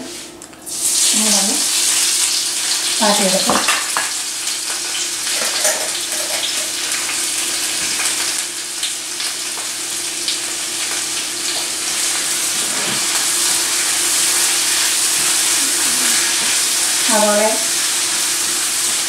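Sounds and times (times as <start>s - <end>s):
onions sizzling in a frying pan: 0.1s - 19.0s.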